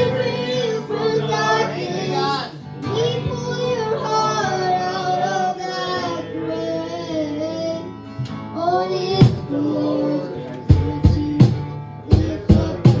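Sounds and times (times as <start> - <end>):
worship band playing: 0.0 - 6.5, 9.2 - 13.0
person singing: 0.0 - 13.0
drum hits: 9.2 - 9.5, 10.7 - 13.0.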